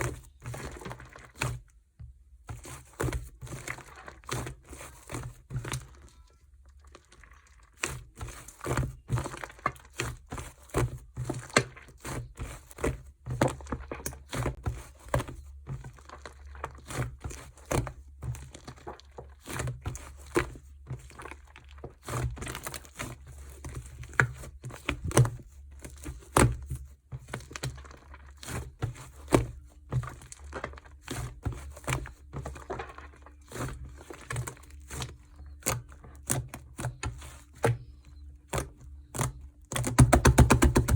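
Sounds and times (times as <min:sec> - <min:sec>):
slime air pockets popping: 0:38.5 - 0:40.9.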